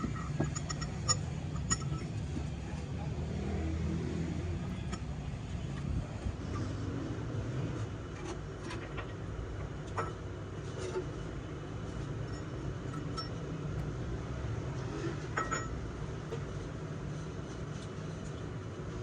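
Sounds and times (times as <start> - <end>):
metal tools clinking: 0.0 - 2.5
steady low rumble: 0.0 - 8.2.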